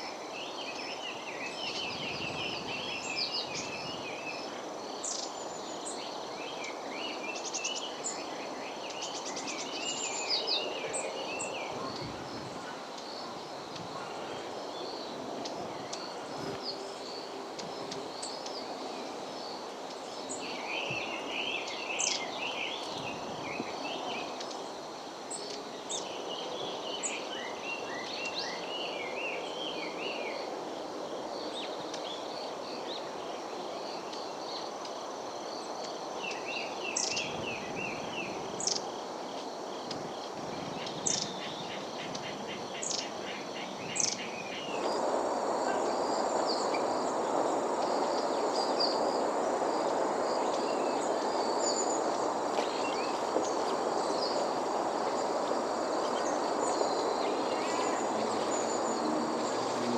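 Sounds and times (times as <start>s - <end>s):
insect trill: 0.0s - 59.9s
low background noise: 0.0s - 59.9s
songbirds chattering: 33.8s - 59.9s
high falling bird calls: 39.9s - 59.9s.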